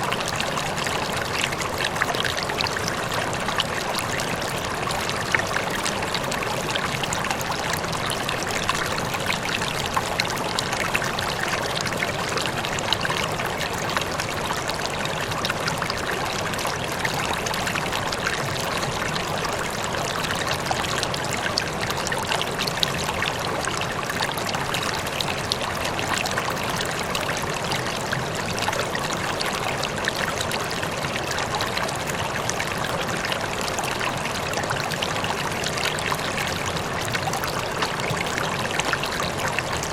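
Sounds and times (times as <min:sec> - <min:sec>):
water flowing steadily: 0:00.0 - 0:39.9.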